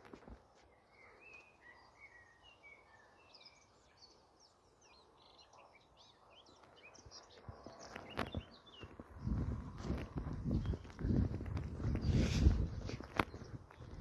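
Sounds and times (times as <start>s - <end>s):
faint birdsong: 0.0s - 14.0s.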